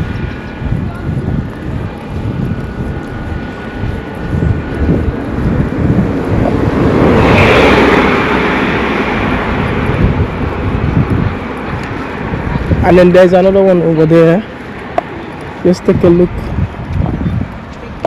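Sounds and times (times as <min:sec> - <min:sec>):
vehicle passing with whoosh: 0:00.0 - 0:18.0
wind buffeting microphone: 0:00.0 - 0:18.0.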